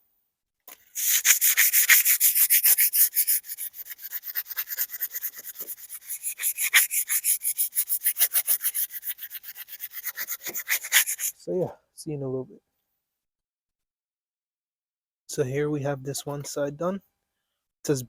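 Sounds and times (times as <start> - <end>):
sandpaper scrubbing steel: 0.9 - 11.4.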